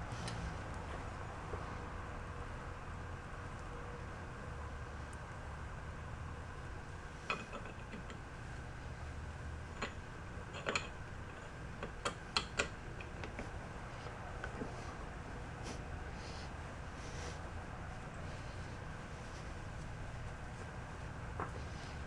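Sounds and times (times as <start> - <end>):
metal tools clicking and tapping: 7.3 - 8.2, 9.7 - 13.5.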